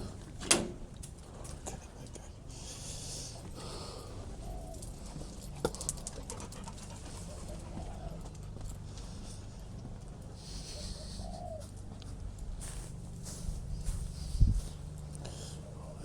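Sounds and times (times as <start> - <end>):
steady low rumble: 6.7 - 16.0
bird calling low notes: 10.4 - 12.2.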